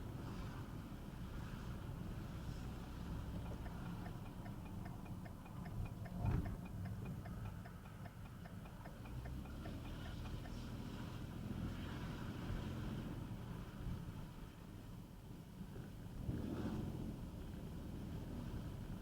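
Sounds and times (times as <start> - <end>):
car driving rumble: 0.0 - 13.4
car turn signal ticking: 3.1 - 10.8.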